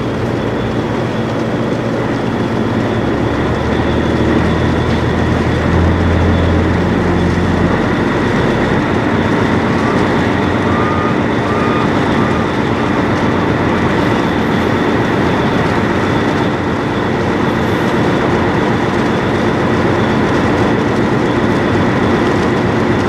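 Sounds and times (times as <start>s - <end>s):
boat engine droning: 0.0s - 23.0s
hull and water noise: 0.0s - 23.0s.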